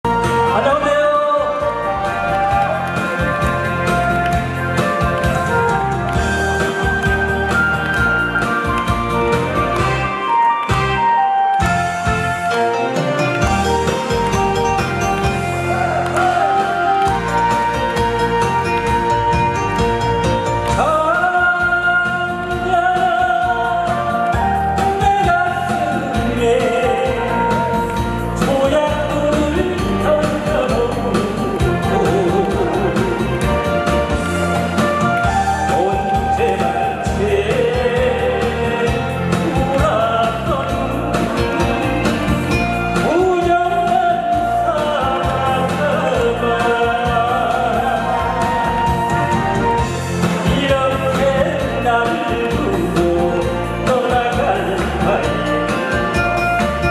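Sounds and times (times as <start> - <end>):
backing track: 0.0 - 56.9
person singing: 0.1 - 56.9.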